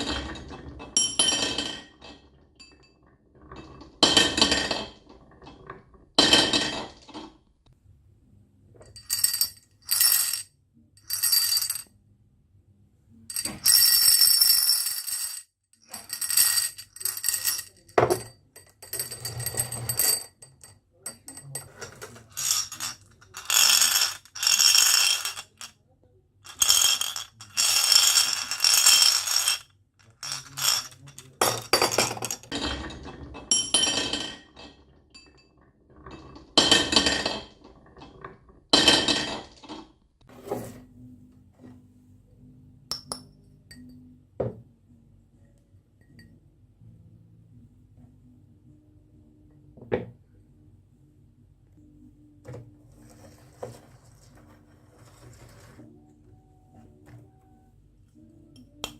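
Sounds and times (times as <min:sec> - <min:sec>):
marbles rolling down wooden run: 0:21.9 - 0:25.7, 0:26.5 - 0:32.5.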